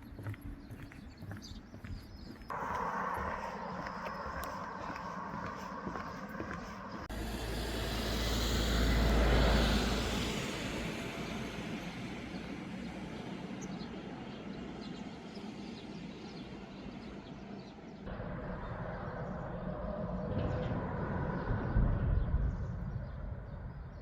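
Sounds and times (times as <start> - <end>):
deep rumble: 0.0 - 12.6
vehicle passing by: 2.5 - 12.8.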